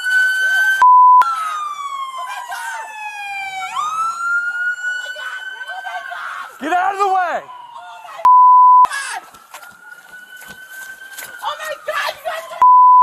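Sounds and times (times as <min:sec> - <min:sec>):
police siren wailing: 0:00.0 - 0:12.7
short steady beep: 0:00.8 - 0:01.2, 0:08.3 - 0:08.9, 0:12.6 - 0:13.0.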